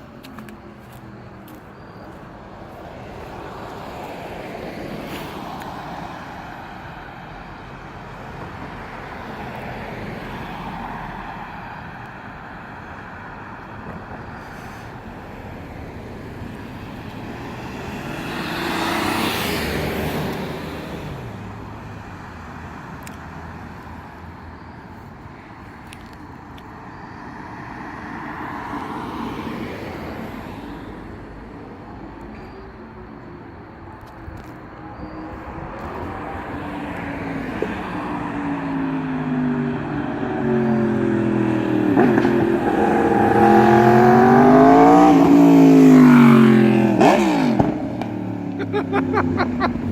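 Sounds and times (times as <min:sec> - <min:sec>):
vehicle passing by: 0:16.2 - 0:21.3, 0:35.5 - 0:49.9.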